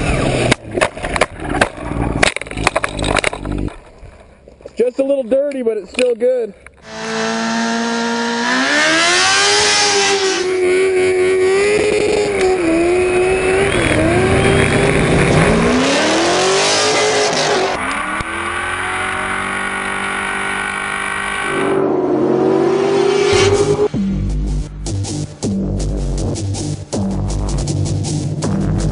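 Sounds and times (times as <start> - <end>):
car engine revving: 6.8 - 27.5.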